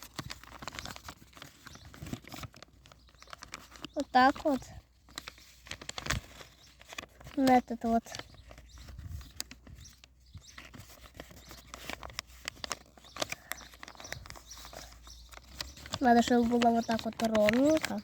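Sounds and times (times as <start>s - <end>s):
paper rustling and crackling: 0.0s - 18.0s.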